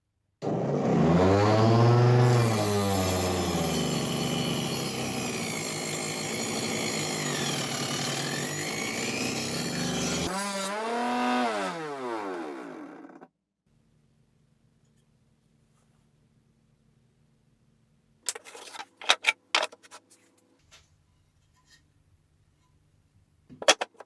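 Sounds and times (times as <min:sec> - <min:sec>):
saw cutting through board: 0:00.4 - 0:13.3
table saw motor whine: 0:00.4 - 0:13.3.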